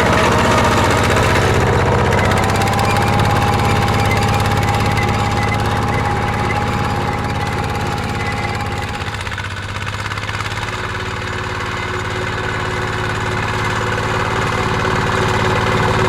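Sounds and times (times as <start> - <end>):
steady whine: 0.0 - 9.6
tractor engine running: 0.0 - 16.0.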